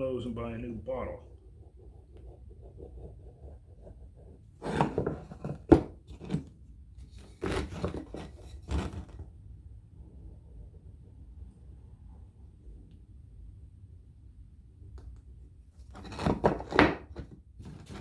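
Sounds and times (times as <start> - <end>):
knocks and scrapes of wooden pieces: 1.1 - 9.3, 15.8 - 18.0.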